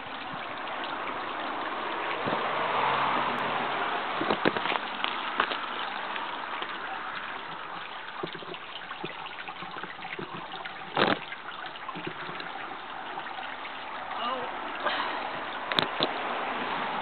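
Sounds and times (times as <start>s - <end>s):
short water burst: 0.0s - 17.0s
water trickling and lapping: 0.0s - 17.0s
small splashy clicks: 4.2s - 12.6s, 15.6s - 16.2s.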